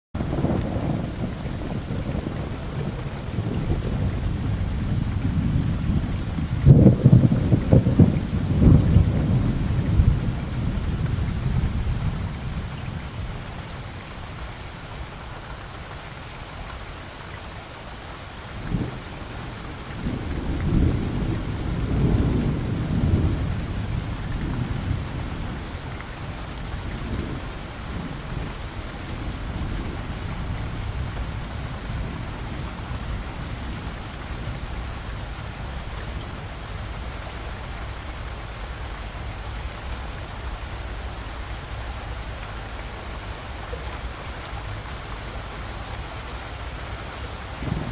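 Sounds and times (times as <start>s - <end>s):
steady rain: 0.1s - 47.9s
sharp thunder crack: 0.2s - 10.8s, 18.7s - 25.6s, 47.6s - 47.9s
thunder rumbling: 0.2s - 14.0s, 18.5s - 41.2s, 41.8s - 47.9s.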